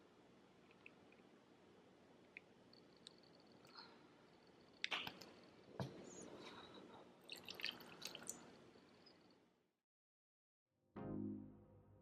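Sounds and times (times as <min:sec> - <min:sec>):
faint small clicks: 0:00.6 - 0:01.3, 0:02.2 - 0:03.9.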